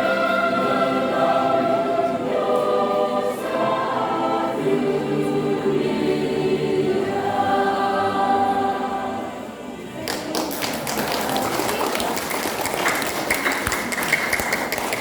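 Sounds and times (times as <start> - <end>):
church choir singing: 0.0 - 15.0
scattered taps and knocks: 10.1 - 15.0.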